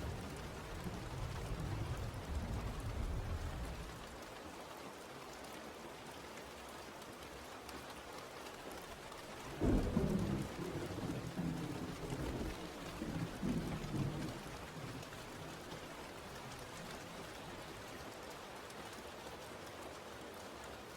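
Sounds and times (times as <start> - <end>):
steady rain falling: 0.0 - 20.9
thunder rumbling: 9.5 - 16.6.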